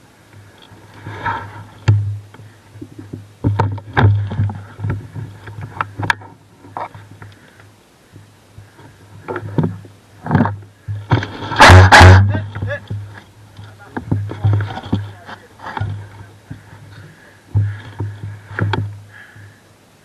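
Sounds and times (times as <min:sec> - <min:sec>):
low hum: 0:08.2 - 0:19.6
sharp clicks and knocks: 0:09.3 - 0:19.0.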